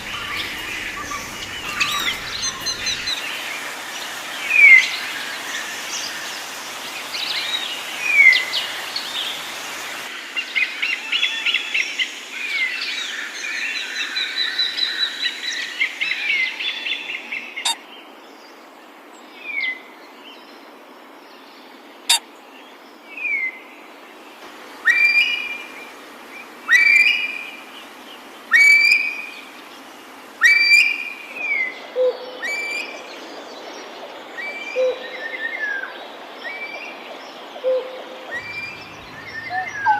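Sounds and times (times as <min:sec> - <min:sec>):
birds whistling down-slurred notes: 0:00.0 - 0:03.7, 0:37.6 - 0:39.9
birds chattering: 0:00.0 - 0:10.1, 0:38.2 - 0:39.9
loud sharp bird calls: 0:00.0 - 0:10.1, 0:37.6 - 0:39.9.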